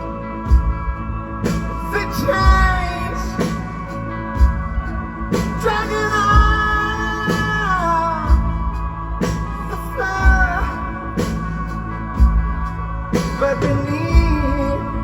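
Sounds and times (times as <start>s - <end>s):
guitars: 0.0s - 15.0s
keyboards: 0.0s - 15.0s
drums beating: 0.5s - 15.0s.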